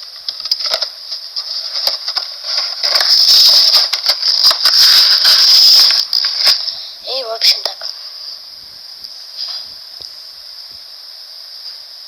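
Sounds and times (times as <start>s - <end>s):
plastic packaging crinkling: 0.1s - 6.8s.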